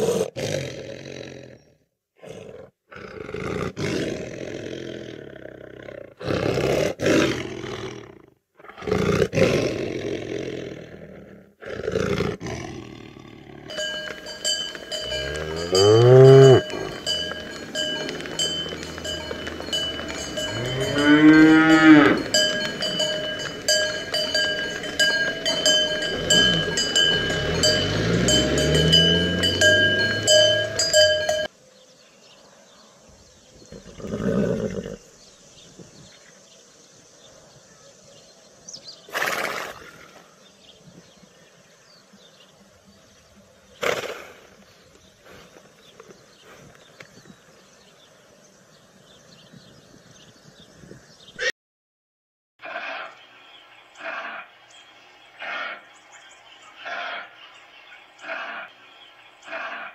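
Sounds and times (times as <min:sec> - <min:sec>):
cows mooing: 0:12.9 - 0:31.5
cowbells clanking: 0:13.7 - 0:31.5.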